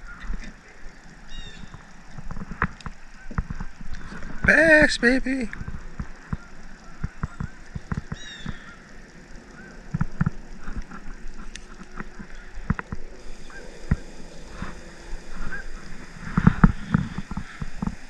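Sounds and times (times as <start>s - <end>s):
short chirping calls: 7.2s - 8.9s.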